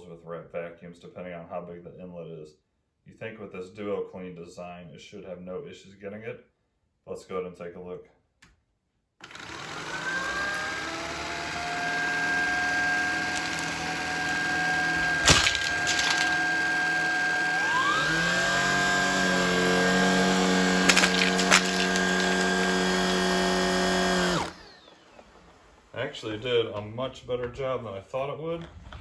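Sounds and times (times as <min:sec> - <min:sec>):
stick vacuum motor whine: 0:09.2 - 0:25.4
jelly beans clacking: 0:12.9 - 0:16.7, 0:20.7 - 0:23.0.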